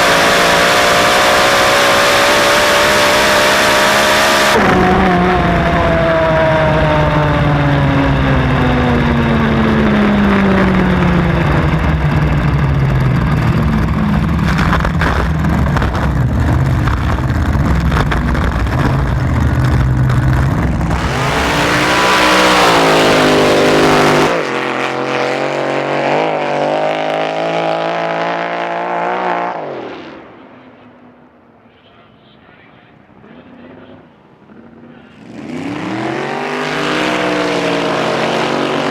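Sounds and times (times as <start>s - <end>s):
boat engine revving: 0.0s - 29.4s
low engine rumble: 4.6s - 24.8s.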